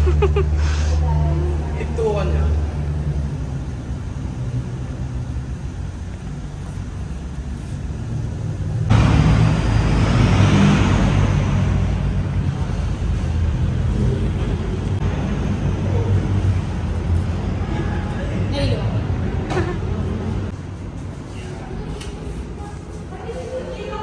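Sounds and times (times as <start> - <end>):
car engine rumbling: 0.0 - 21.8
road and wind noise: 0.0 - 24.0.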